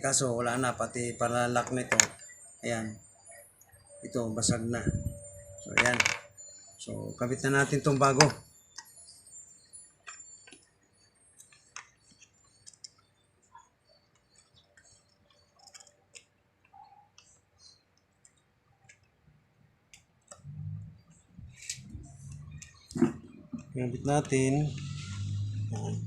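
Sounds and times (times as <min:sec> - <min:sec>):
small parts clicking and tapping: 0:05.7 - 0:06.3, 0:09.9 - 0:10.7, 0:11.3 - 0:19.2.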